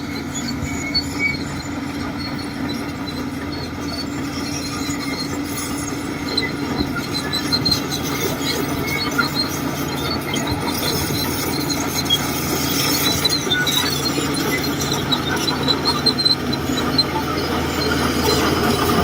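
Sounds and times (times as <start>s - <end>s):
bulldozer engine drone: 0.0s - 19.0s
high metallic squeals: 0.0s - 19.0s.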